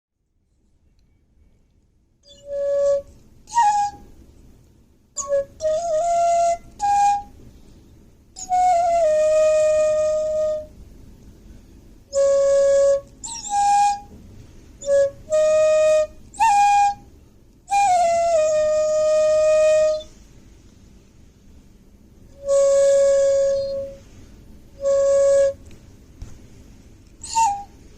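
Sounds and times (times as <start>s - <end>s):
solo flute melody: 2.2s - 4.4s, 5.2s - 10.8s, 12.0s - 20.2s, 22.3s - 26.4s, 27.0s - 27.9s.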